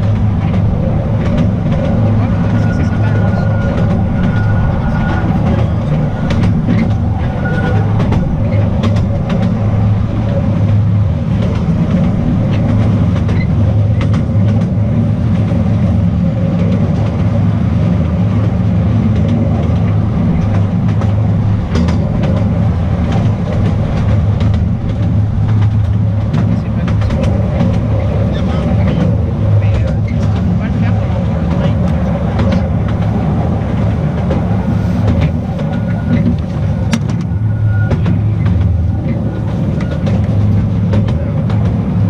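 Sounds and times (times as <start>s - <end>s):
train wheels rumbling on rails: 0.0s - 42.0s.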